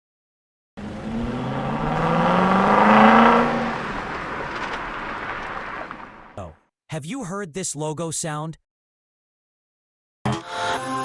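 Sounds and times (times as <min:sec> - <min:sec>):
car engine accelerating: 0:00.8 - 0:06.4.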